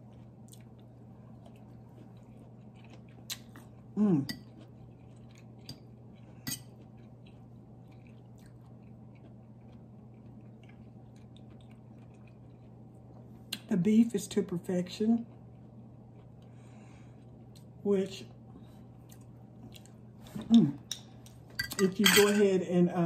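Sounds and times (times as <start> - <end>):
person chewing food: 0.0 - 13.7, 15.2 - 17.8, 18.4 - 21.5.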